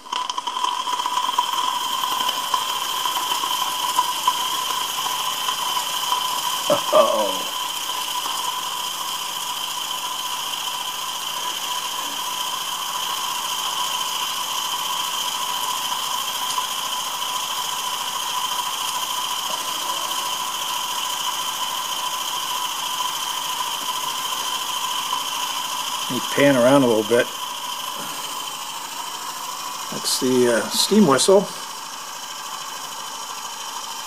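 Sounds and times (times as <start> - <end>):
steam hissing: 0.0 - 34.0
high whine: 5.8 - 8.7, 23.8 - 32.9.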